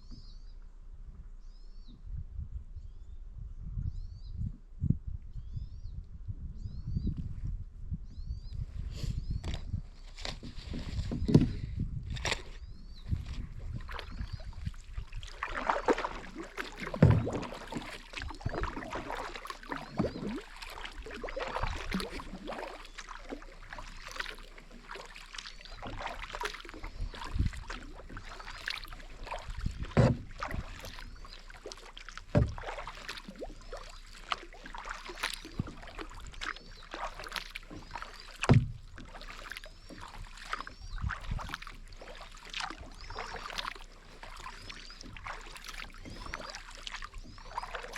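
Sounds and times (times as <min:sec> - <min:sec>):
paddle splashing in water: 0:09.4 - 0:47.9.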